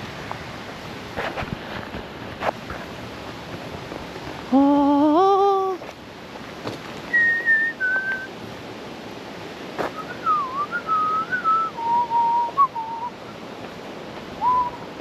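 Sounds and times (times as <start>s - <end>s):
person whistling a tune: 7.1s - 8.3s, 10.0s - 13.1s, 14.4s - 14.8s.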